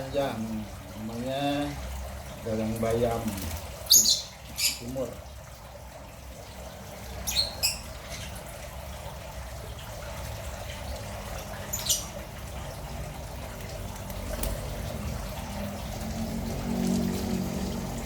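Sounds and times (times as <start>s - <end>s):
trickle of running water: 0.0s - 18.0s
high bird chirps: 3.9s - 4.9s, 7.2s - 8.4s, 11.7s - 12.2s.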